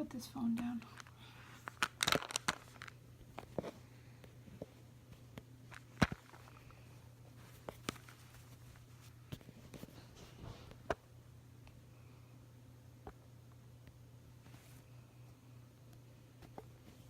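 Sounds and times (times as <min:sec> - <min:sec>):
faint steady low hum: 0:00.0 - 0:17.0.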